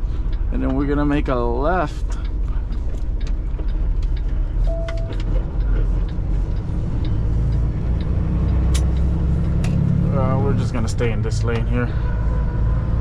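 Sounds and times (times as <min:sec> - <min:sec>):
diesel truck engine rumble: 0:00.0 - 0:13.0
short beep: 0:04.7 - 0:05.2.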